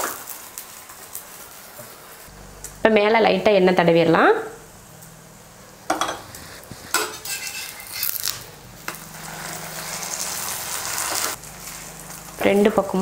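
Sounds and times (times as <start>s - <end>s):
flatbread sizzling in oil: 0.0s - 2.3s, 5.8s - 13.0s
metal utensil scraping griddle: 5.9s - 13.0s.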